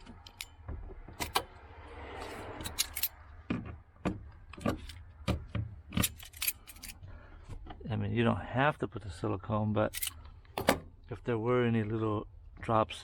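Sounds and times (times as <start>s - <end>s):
metallic clicks of tools: 0.0s - 0.6s, 2.6s - 3.2s, 6.0s - 7.0s, 9.9s - 10.7s.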